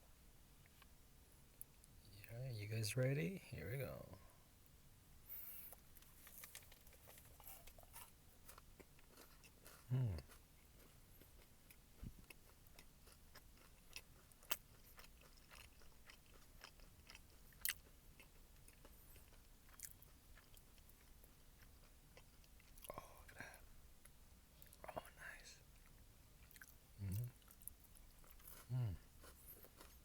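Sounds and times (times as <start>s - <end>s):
chewing crunchy granola bar: 5.7s - 30.0s
person humming: 27.0s - 27.3s.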